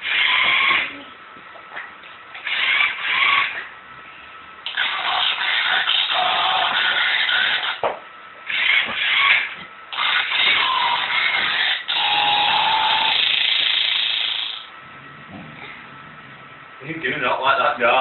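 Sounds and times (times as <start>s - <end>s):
toy harsh electronic buzzing: 0.0s - 1.0s, 2.4s - 3.6s, 4.6s - 7.8s, 8.4s - 14.7s.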